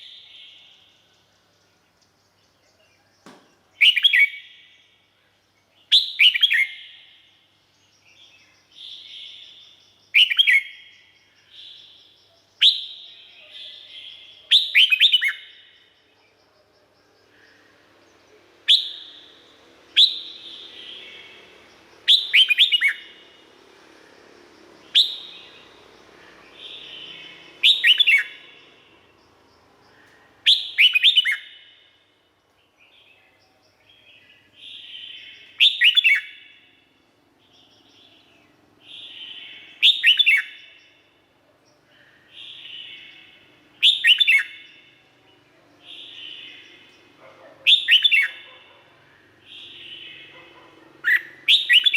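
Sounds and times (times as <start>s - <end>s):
bird singing whistled phrases: 3.8s - 4.5s, 5.9s - 7.0s, 10.2s - 10.8s, 12.6s - 15.5s, 18.7s - 19.4s, 20.0s - 21.4s, 22.0s - 23.1s, 24.9s - 25.6s, 26.6s - 28.4s, 30.4s - 31.6s, 34.7s - 36.4s, 38.9s - 40.7s, 42.4s - 44.7s, 47.7s - 48.4s, 51.0s - 51.9s.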